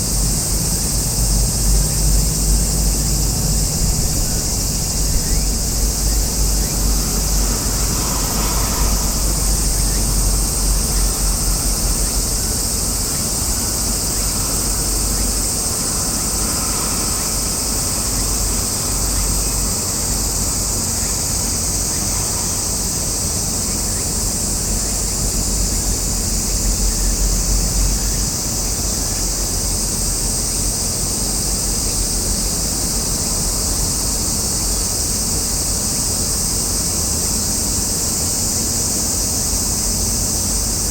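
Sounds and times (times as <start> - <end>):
wind rumble on microphone: 0.0 - 22.6
high-pitched insect drone: 0.0 - 40.9.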